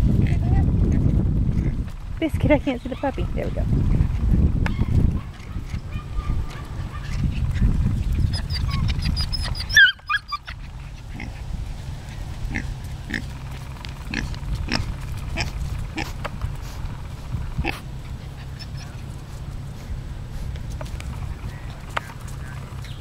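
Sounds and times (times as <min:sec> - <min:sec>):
pig squealing: 0:08.2 - 0:11.4, 0:17.6 - 0:19.1
pig grunting: 0:11.0 - 0:11.5, 0:12.1 - 0:16.9, 0:17.6 - 0:19.8.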